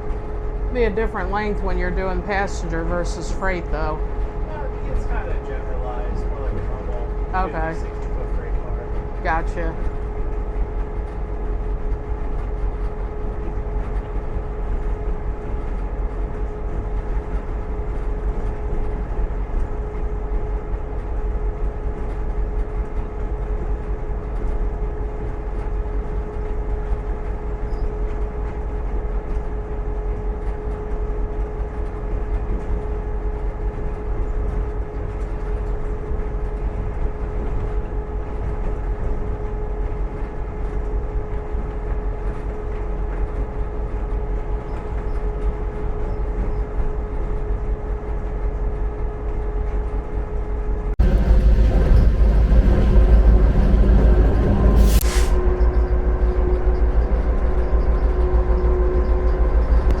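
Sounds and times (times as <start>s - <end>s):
steady whine: 0.0s - 18.7s, 50.4s - 60.0s
diesel locomotive engine rumble: 0.0s - 60.0s.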